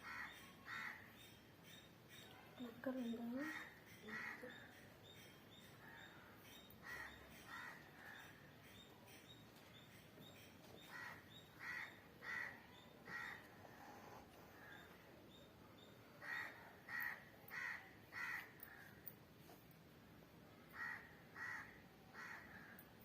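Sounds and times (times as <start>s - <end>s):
crows cawing: 0.0s - 1.2s, 3.5s - 4.8s, 6.8s - 8.4s, 10.9s - 13.5s, 16.2s - 19.0s, 20.7s - 22.8s.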